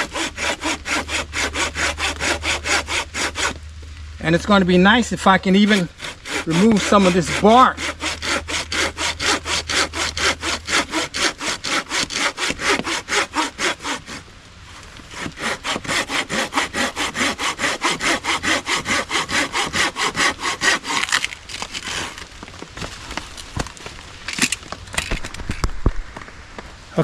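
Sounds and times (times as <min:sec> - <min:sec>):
hand saw cutting wood: 0:00.0 - 0:03.6, 0:05.2 - 0:14.2, 0:14.8 - 0:22.3.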